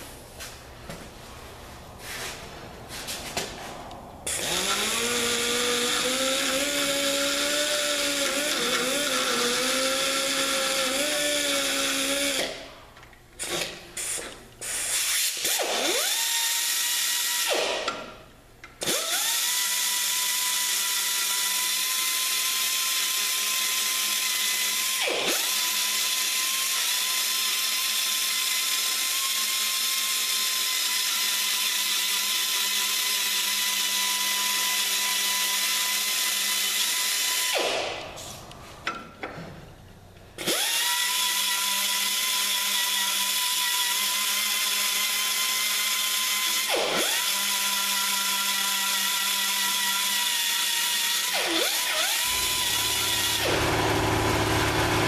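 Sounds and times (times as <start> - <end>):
power grinder whining: 4.3 - 12.6, 40.4 - 55.0.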